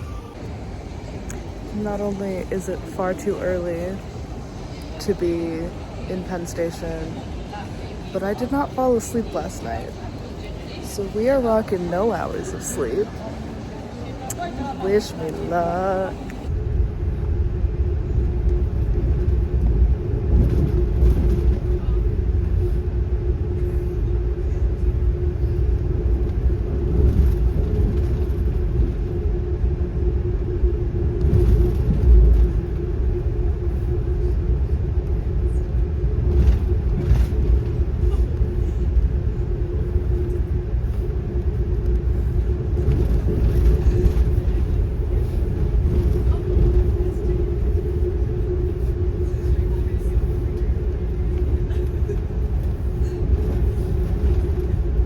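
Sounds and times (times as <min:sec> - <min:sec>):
constant hum: 0:00.0 - 0:55.0
train rumbling: 0:00.0 - 0:55.0.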